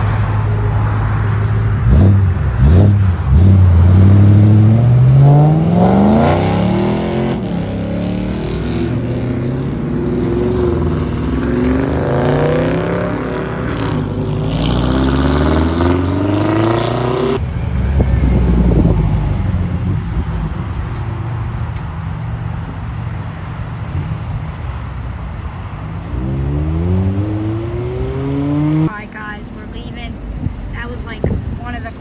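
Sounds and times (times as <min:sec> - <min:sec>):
car engine accelerating: 0:00.0 - 0:20.8, 0:26.0 - 0:29.2
car exhaust rumbling and revving: 0:00.0 - 0:32.0.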